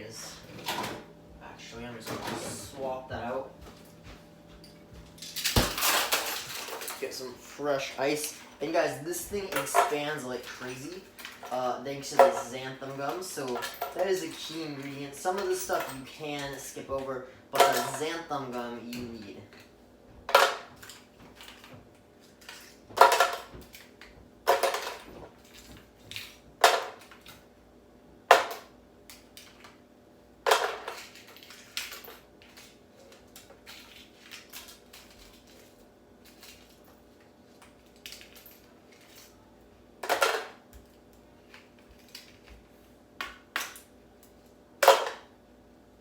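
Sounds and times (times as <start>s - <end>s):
ice cubes clattering: 5.2s - 7.2s.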